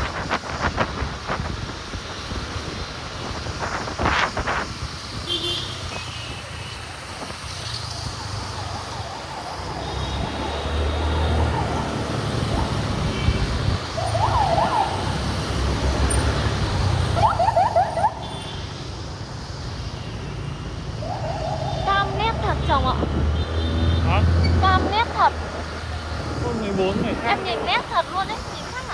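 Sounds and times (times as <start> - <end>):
motorbike road and wind rumble: 0.0 - 28.9
yelping siren: 7.9 - 18.8, 20.1 - 23.2, 23.8 - 28.9.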